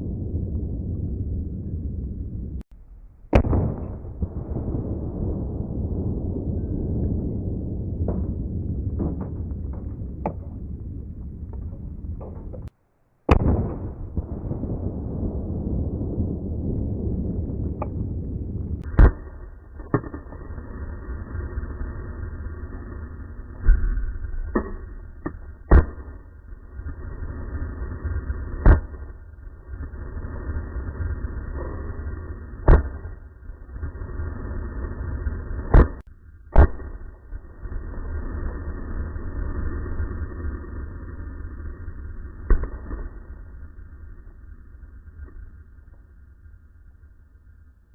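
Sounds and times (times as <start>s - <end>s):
steady low rumble: 0.0s - 47.9s
gunshot with echo: 3.3s - 4.3s, 13.3s - 14.3s
gunshots: 3.3s - 5.5s, 13.3s - 15.0s, 18.8s - 20.4s, 24.5s - 26.2s, 28.6s - 29.1s, 32.6s - 33.2s, 35.7s - 37.1s.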